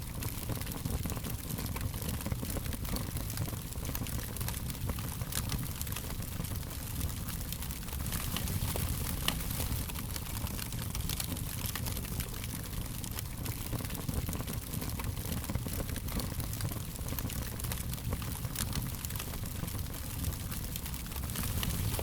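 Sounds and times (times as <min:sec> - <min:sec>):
fire crackling: 0:00.0 - 0:22.0.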